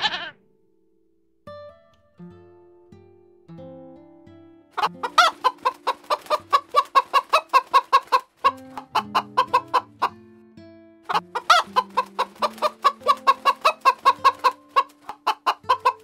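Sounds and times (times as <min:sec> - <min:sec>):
hen clucking: 0:00.0 - 0:00.3, 0:04.8 - 0:10.2, 0:11.1 - 0:16.0
soft plucked guitar music: 0:00.0 - 0:16.0.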